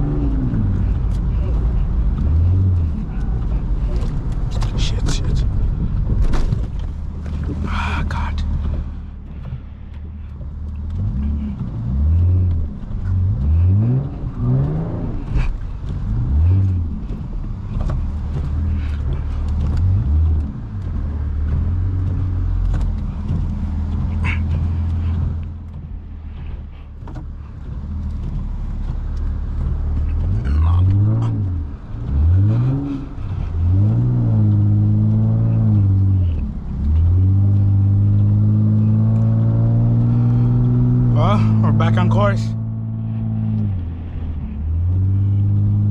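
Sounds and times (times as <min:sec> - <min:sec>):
car engine revving: 0:00.0 - 0:45.9.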